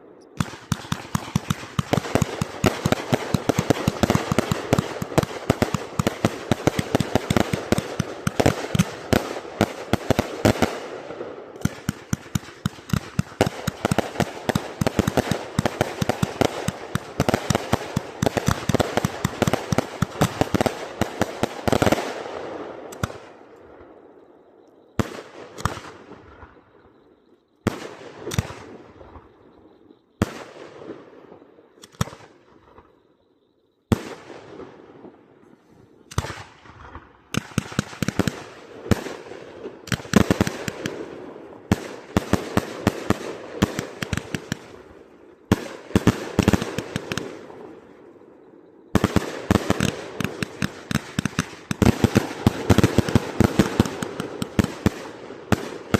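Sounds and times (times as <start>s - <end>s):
firework cracks and bangs: 0.4s - 22.3s, 36.1s - 47.8s, 49.0s - 55.9s.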